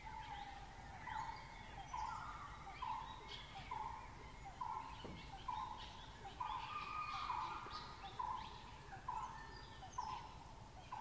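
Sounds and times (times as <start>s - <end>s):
birds chirping and trilling: 0.0s - 11.0s.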